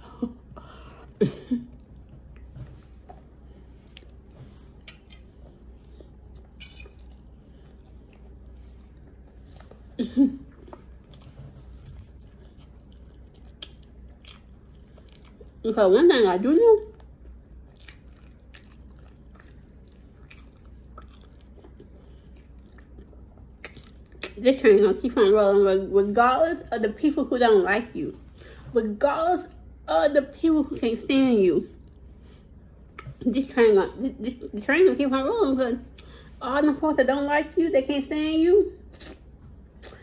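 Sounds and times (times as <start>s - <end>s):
low hum: 0.0s - 40.0s
person chewing biscuit: 0.6s - 15.7s, 16.8s - 24.4s, 31.8s - 33.2s
mouth clicks and smacks: 1.7s - 15.6s, 16.8s - 24.4s, 31.8s - 33.2s, 38.9s - 40.0s.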